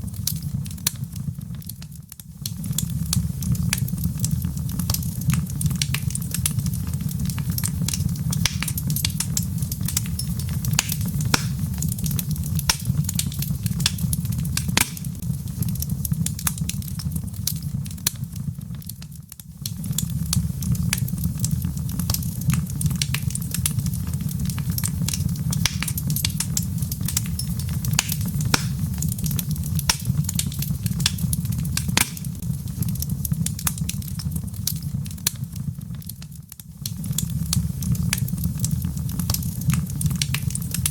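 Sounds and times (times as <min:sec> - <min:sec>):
log fire crackling: 0:00.0 - 0:40.9
steady low rumble: 0:02.6 - 0:18.0, 0:19.8 - 0:35.3.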